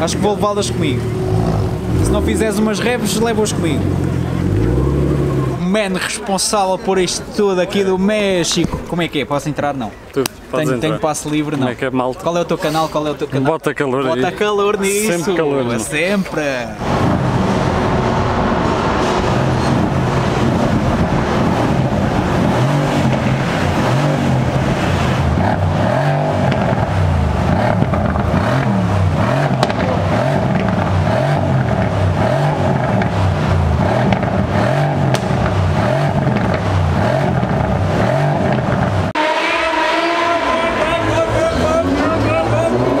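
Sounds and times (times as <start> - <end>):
car engine revving: 0.0 - 6.1, 16.8 - 43.0.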